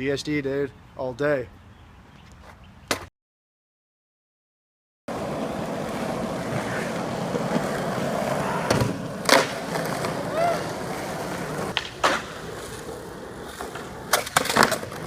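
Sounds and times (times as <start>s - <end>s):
skateboard clacks: 5.1s - 15.0s
skateboard wheels rolling on pavement: 5.1s - 15.0s.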